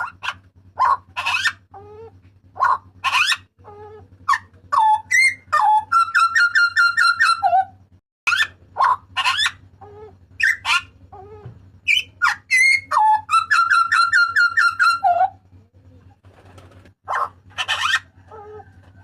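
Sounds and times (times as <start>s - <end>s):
faint steady hum: 0.0s - 19.0s
bird calling harsh whistled notes: 4.3s - 7.7s, 10.4s - 10.9s, 11.8s - 15.4s.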